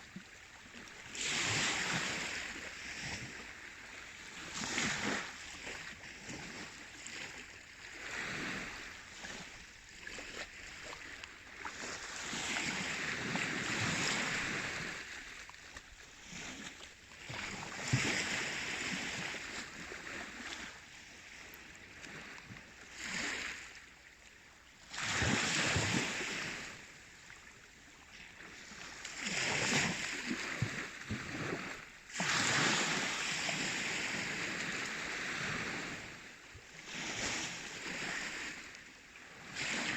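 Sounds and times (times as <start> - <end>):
sea waves rushing: 29.2 - 38.8.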